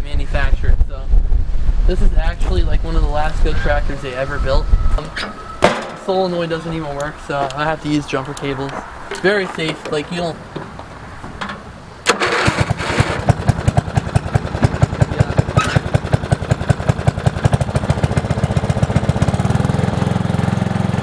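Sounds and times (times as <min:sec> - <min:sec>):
lawn tractor engine chugging: 0:12.1 - 0:21.0.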